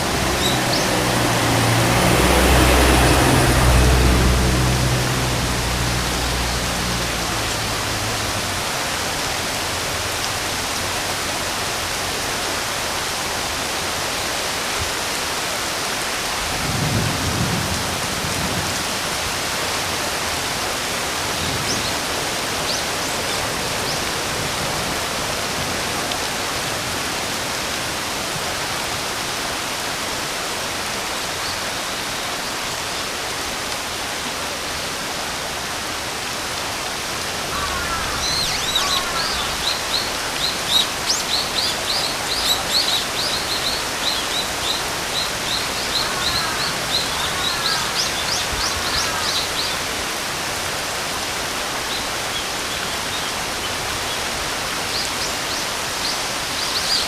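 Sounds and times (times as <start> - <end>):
heavy rain hissing: 0.0 - 57.0
thunder rumbling: 16.4 - 18.8.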